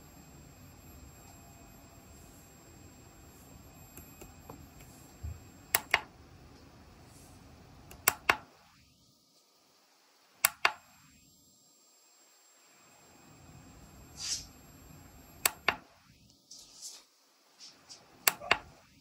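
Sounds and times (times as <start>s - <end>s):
push-button switch clicking: 5.7s - 6.1s, 7.9s - 8.4s, 10.4s - 10.8s, 18.3s - 18.6s.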